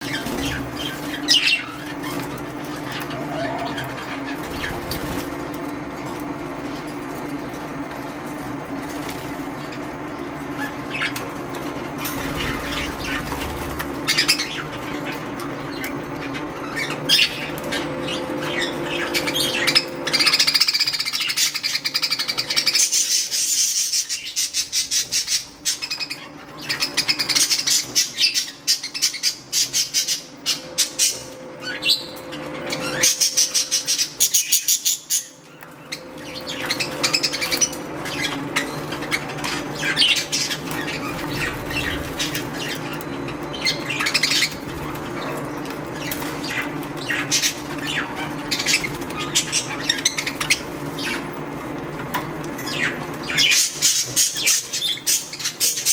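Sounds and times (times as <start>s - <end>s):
budgerigars chirping: 0.0s - 5.2s, 12.1s - 51.4s, 52.6s - 55.9s
wings fluttering and splashing: 0.0s - 7.3s, 8.7s - 9.9s, 10.6s - 23.6s, 36.0s - 55.9s.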